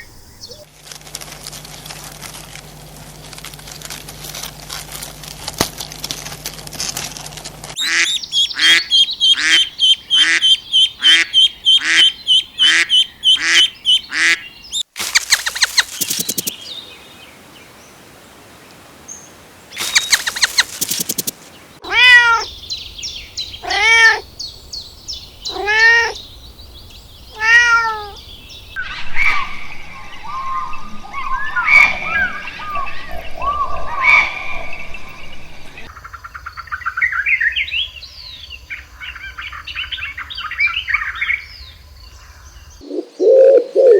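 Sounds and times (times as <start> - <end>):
drawn-out rising and falling calls: 7.7 - 18.1, 19.2 - 36.4, 42.8 - 43.9.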